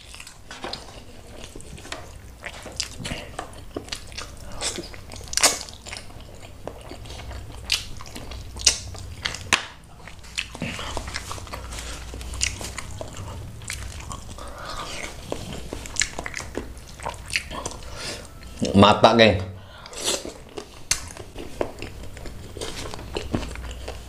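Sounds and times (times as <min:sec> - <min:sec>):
wet chewing and lip smacking: 0:00.0 - 0:18.6, 0:19.8 - 0:24.0.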